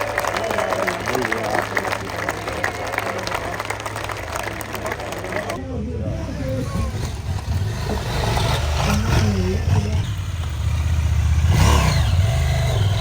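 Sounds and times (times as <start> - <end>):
motorcycle engine revving: 5.7 - 13.0.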